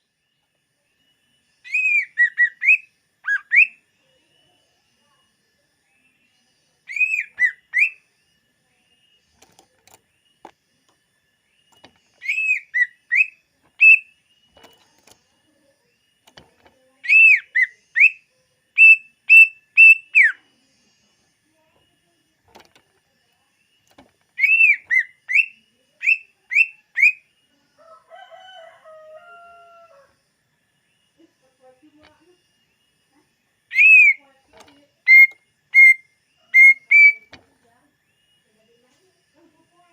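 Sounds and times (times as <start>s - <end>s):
bird singing whistled notes: 1.0s - 4.6s, 5.8s - 8.4s, 11.4s - 14.8s, 15.8s - 20.6s, 23.3s - 27.4s, 33.6s - 38.7s.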